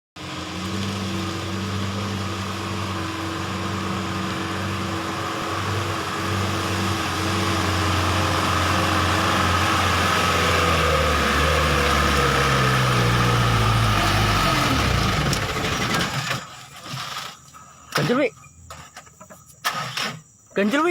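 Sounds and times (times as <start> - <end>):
truck engine running: 0.2 - 16.5.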